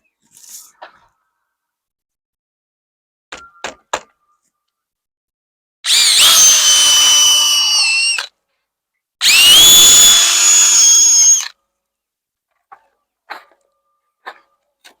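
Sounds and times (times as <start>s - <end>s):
power drill driving screws into wood: 5.9s - 8.3s, 9.2s - 11.5s.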